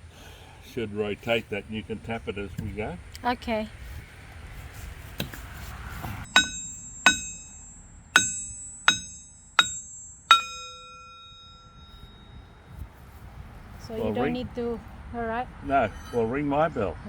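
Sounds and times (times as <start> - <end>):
metal sprocket ringing: 6.2 - 12.9
hammer striking metal: 6.2 - 13.0.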